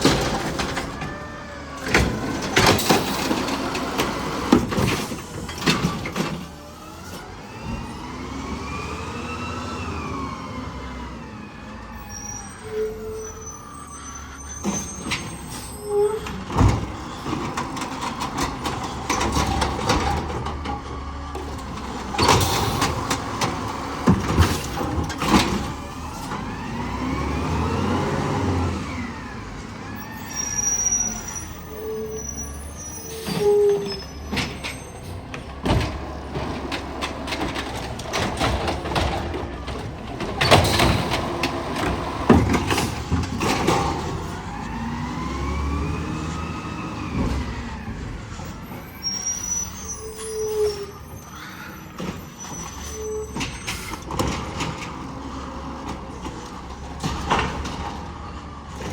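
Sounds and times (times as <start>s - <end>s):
garbage truck engine revving: 0.0s - 58.9s
hydraulics running: 0.0s - 58.9s
short high squeals: 12.0s - 16.4s, 30.0s - 35.1s, 48.8s - 54.0s.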